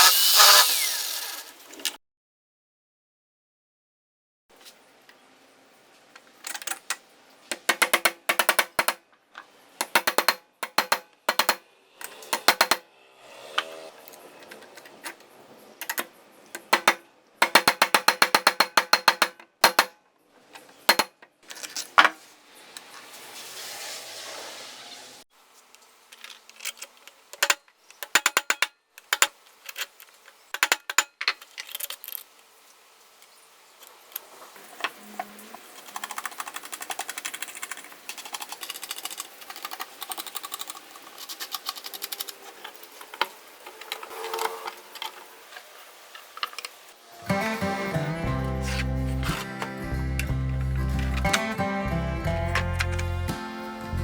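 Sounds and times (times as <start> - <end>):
rapid clicking and rattling: 35.8 - 42.8.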